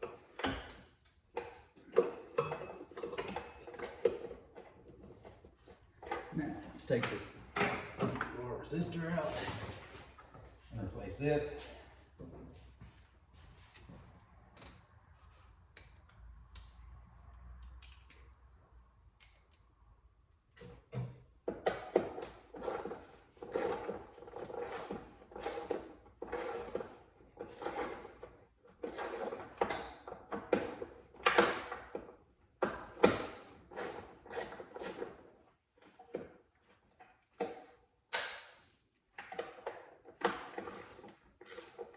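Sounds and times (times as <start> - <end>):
knocks and rattling clatters: 0.0 - 8.5, 20.7 - 41.9.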